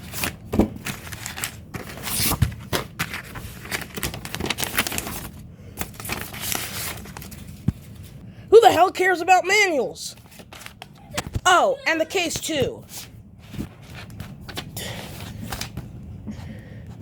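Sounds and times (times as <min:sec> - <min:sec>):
packaging tearing and crinkling: 0:03.1 - 0:07.3.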